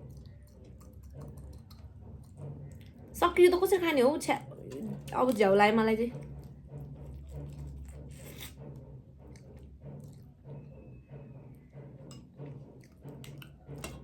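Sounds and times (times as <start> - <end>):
crab shell cracking and scraping: 0.1 - 2.4, 7.2 - 8.8.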